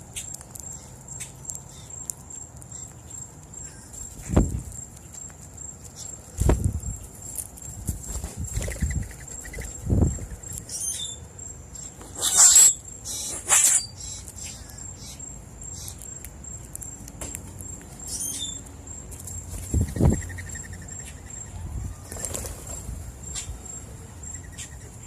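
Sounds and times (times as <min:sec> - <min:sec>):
high-pitched insect trill: 0:00.0 - 0:25.0
bird chirps: 0:08.4 - 0:17.0, 0:17.6 - 0:25.0.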